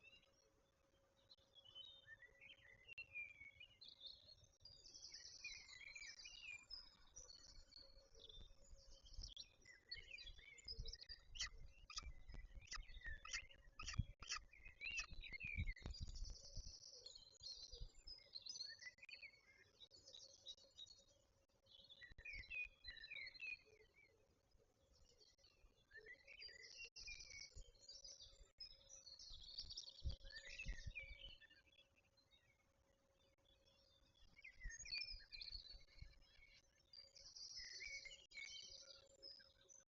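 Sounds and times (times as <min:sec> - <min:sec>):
bird chirps and trills: 0:05.5 - 0:19.0
wind on microphone: 0:10.7 - 0:16.8.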